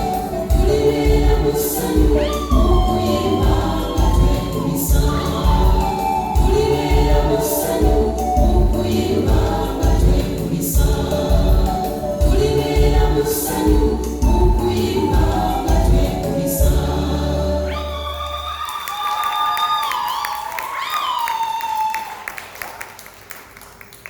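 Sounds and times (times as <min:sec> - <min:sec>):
pulsing bass beat: 0:00.0 - 0:17.5
gospel choir singing: 0:00.0 - 0:18.5.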